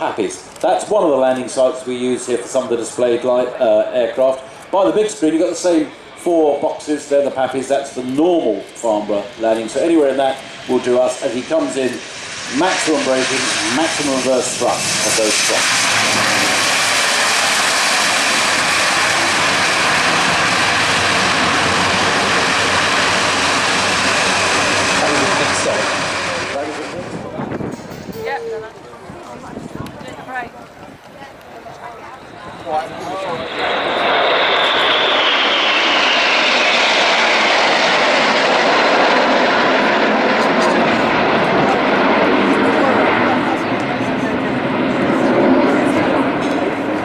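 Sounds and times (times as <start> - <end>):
turboprop engines in reverse thrust: 4.3 - 28.1, 32.1 - 47.0
high whine falling in pitch: 32.0 - 42.4.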